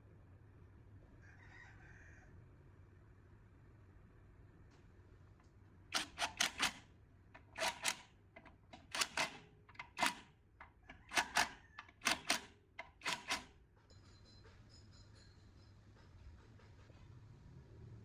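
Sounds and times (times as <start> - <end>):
sharp clicks and taps: 7.4 - 13.5.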